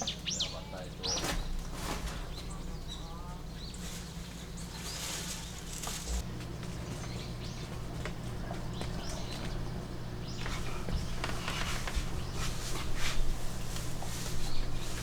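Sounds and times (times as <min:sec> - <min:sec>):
bird chirps: 0:00.0 - 0:01.5
steady low hum: 0:00.0 - 0:15.0
rustling: 0:01.0 - 0:09.6, 0:10.2 - 0:15.0.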